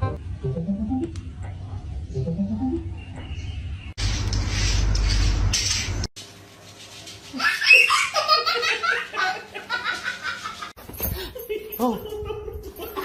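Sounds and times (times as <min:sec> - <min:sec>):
hearty human laughter: 0:07.4 - 0:13.0.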